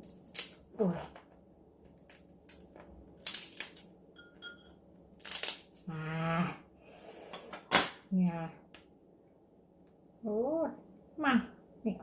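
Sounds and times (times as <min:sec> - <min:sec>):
crab shell cracking: 0:00.0 - 0:03.9, 0:05.1 - 0:05.8.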